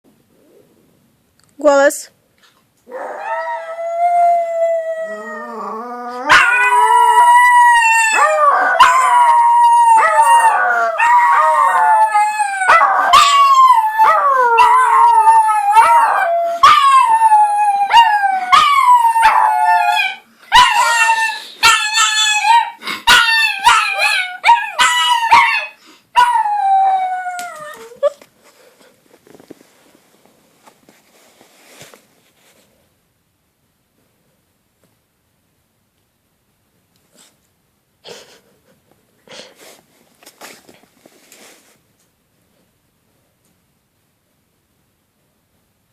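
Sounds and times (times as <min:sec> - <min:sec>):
dogs howling: 0:02.9 - 0:28.1.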